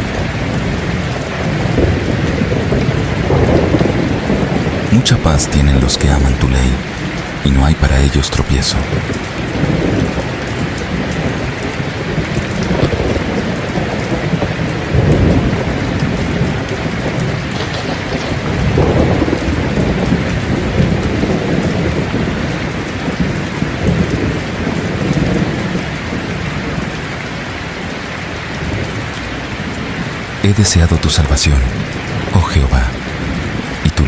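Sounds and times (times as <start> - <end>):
rolling thunder: 0.0 - 7.4, 8.8 - 27.1
heavy rain falling: 0.0 - 34.0.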